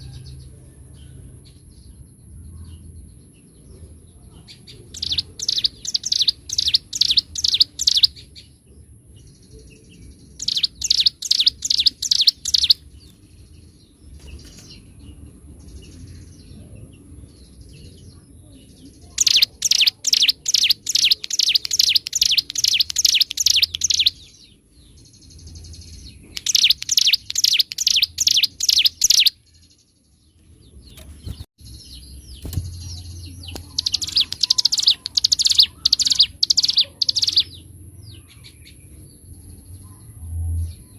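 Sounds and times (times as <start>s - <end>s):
bird singing rapid drilling phrases: 1.0s - 40.0s
bird twittering: 4.9s - 8.3s, 10.3s - 13.2s, 19.1s - 24.6s, 25.8s - 29.5s, 30.9s - 37.6s.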